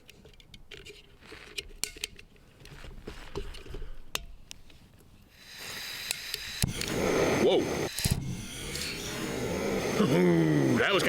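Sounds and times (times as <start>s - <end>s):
gas hissing from stove valve: 5.3s - 11.0s.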